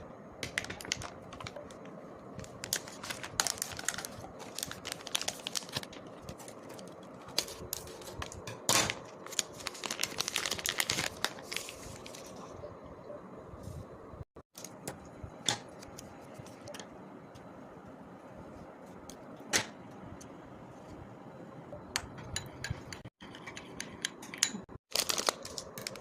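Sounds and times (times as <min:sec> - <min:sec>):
plastic packets crinkling and tearing: 0:00.4 - 0:12.4, 0:24.9 - 0:26.0.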